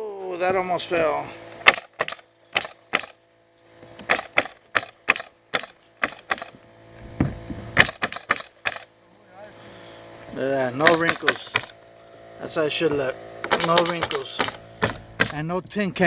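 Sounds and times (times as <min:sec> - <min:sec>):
pneumatic nailer firing: 0:01.3 - 0:09.0, 0:10.8 - 0:12.0, 0:12.8 - 0:15.6.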